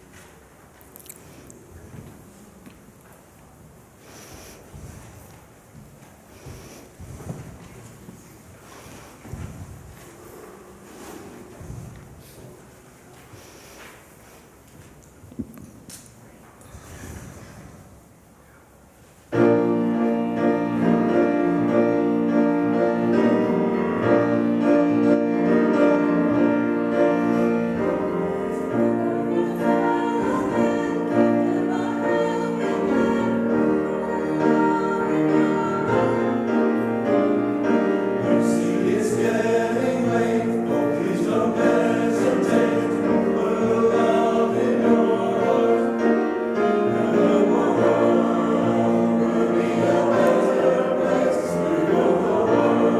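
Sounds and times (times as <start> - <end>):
piano: 0.0 - 52.9
choir singing: 19.3 - 52.9.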